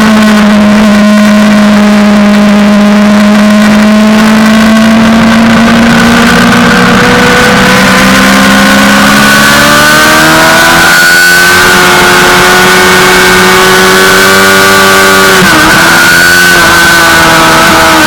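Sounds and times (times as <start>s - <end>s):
motorcycle engine at high revs: 0.0s - 18.0s
steady rush of noise: 0.0s - 18.0s.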